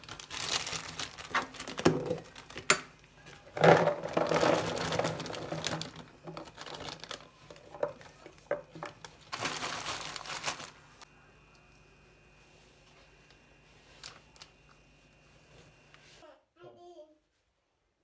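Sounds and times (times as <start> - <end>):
rustling and crinkling: 0.0 - 11.1
kitchen items clicking and knocking: 1.2 - 9.0.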